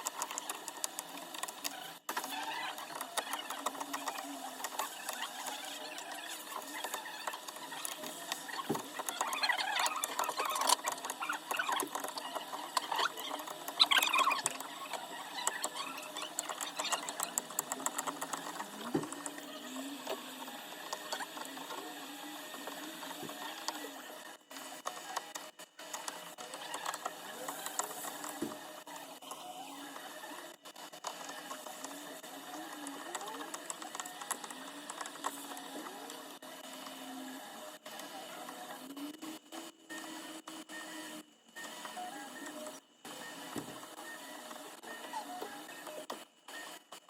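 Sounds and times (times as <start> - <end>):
small tools scratching glass: 0.2 - 24.0.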